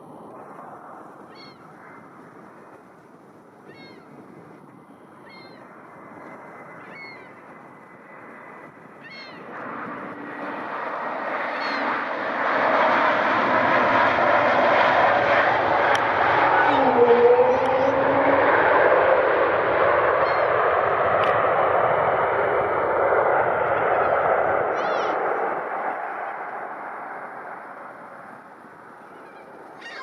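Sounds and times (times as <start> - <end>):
airliner engines roaring: 0.0 - 30.0
bird giving short high calls: 29.1 - 30.0.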